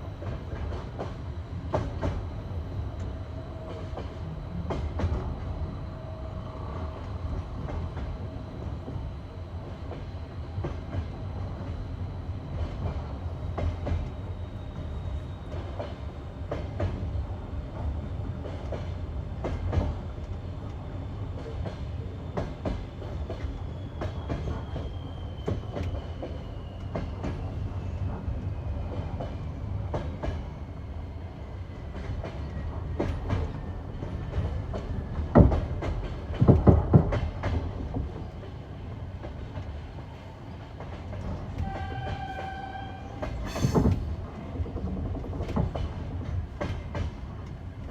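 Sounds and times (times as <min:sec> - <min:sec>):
train wheels clattering over rail joints: 0:31.9 - 0:38.4, 0:43.2 - 0:47.6.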